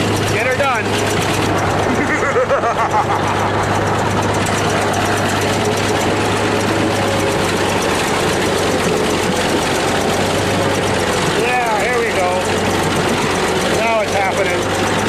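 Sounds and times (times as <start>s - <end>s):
engines running with clatter: 0.0s - 15.0s.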